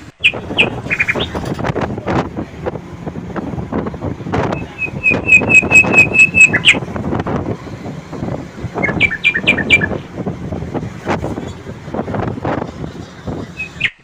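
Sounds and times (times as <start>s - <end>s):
songbird singing: 0.0s - 1.8s, 4.4s - 7.0s, 8.5s - 10.2s, 13.4s - 14.0s
steady noisy background: 0.0s - 14.0s.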